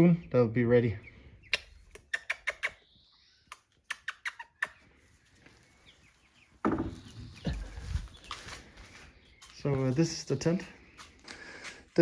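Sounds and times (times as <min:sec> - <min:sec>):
chicks peeping: 0:05.8 - 0:11.8
rustling and handling noise: 0:06.9 - 0:12.0.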